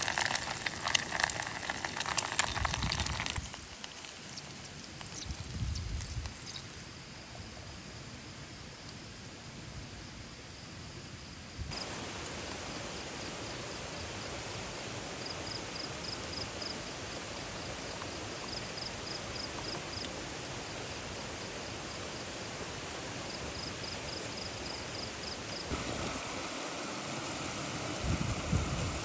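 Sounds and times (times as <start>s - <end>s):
insect chirping in pulses: 0.0s - 8.8s, 11.7s - 29.0s
flowing river water: 11.7s - 19.3s, 20.1s - 29.0s.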